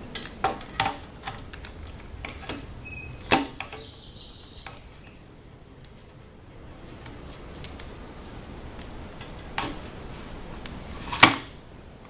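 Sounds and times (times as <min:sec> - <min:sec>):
handling clicks and knocks: 0:00.0 - 0:06.0.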